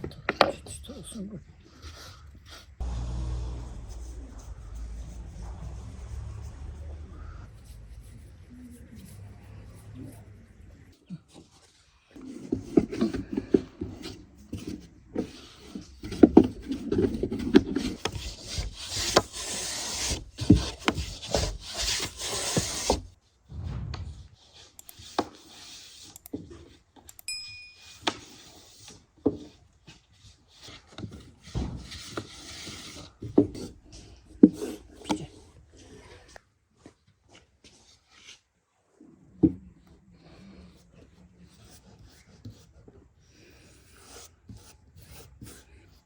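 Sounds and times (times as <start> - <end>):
ringing clink: 27.2 - 28.1.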